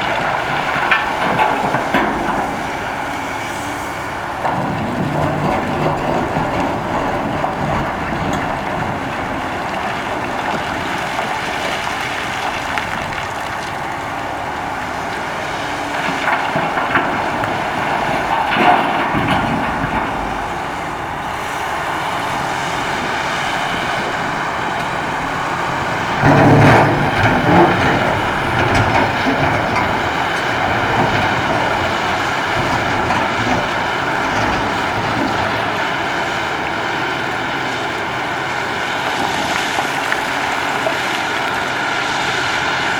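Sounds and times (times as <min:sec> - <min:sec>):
excavator diesel engine under load: 0:00.0 - 0:42.9.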